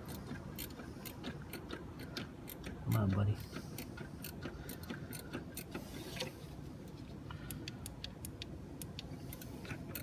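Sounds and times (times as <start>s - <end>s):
wrench clicking on metal bolt: 8.2s - 10.0s.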